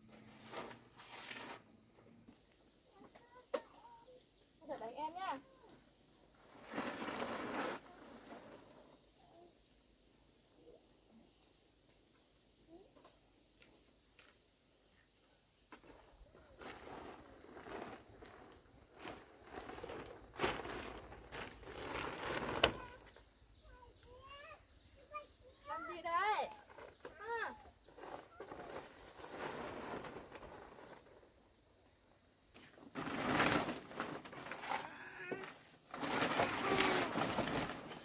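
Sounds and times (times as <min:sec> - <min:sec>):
rustling and handling noises: 0:00.1 - 0:01.7, 0:15.9 - 0:31.4, 0:32.6 - 0:38.0
insects trilling: 0:00.3 - 0:38.0.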